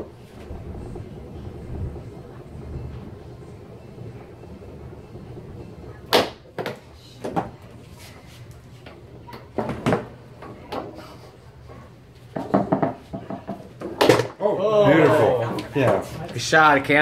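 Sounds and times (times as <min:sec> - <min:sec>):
foosball ball knocks and clacks: 0:12.3 - 0:14.4.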